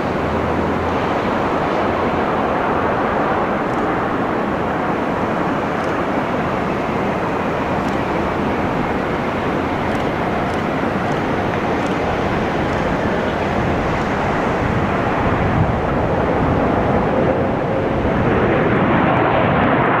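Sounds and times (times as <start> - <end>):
aeroplane roar during landing: 0.0 - 20.0.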